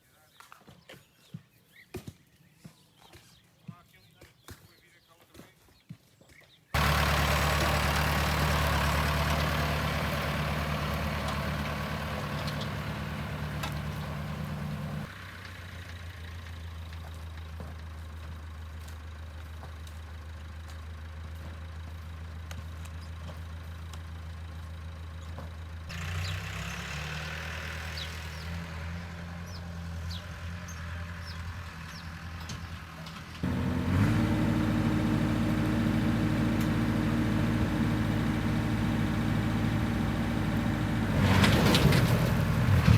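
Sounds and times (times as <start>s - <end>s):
vehicle engine idling: 6.8s - 28.5s, 29.3s - 42.9s.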